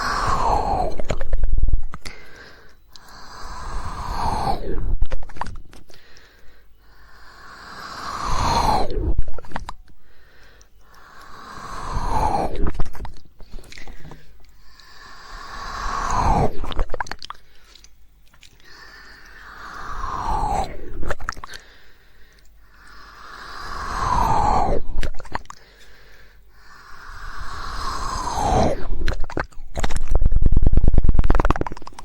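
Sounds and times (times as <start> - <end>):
sharp mouth clicks: 0.2 - 6.5, 8.6 - 21.7, 24.5 - 25.7, 27.3 - 32.0
wet tongue-flicking mouth noises: 0.6 - 3.4, 5.0 - 6.5, 9.2 - 11.4, 12.6 - 15.0, 16.6 - 21.7, 25.0 - 25.7, 28.2 - 32.0.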